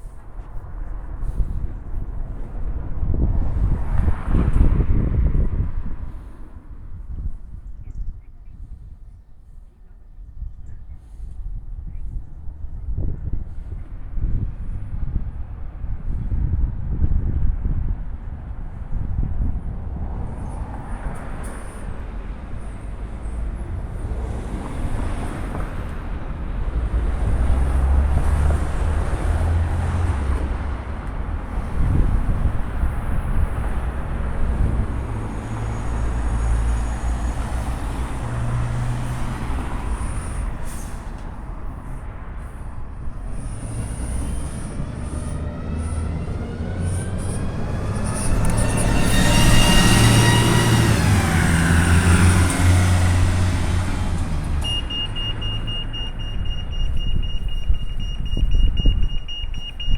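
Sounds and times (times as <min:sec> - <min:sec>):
train wheels rumbling: 0:20.6 - 0:59.7
low engine drone: 0:39.9 - 0:59.9.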